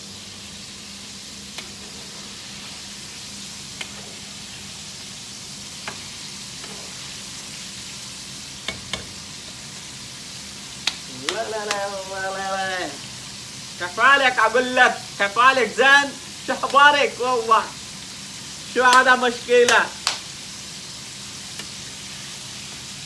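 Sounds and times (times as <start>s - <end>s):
chicken sizzling in oil: 0.0s - 23.0s
spoon knocking against pan: 8.6s - 9.2s.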